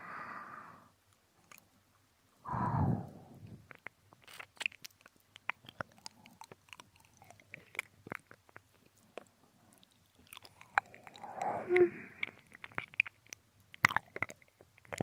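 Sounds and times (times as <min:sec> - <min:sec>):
breathy exhale into ear: 0:02.5 - 0:03.3
wet licking and mouth clicks: 0:03.4 - 0:15.0.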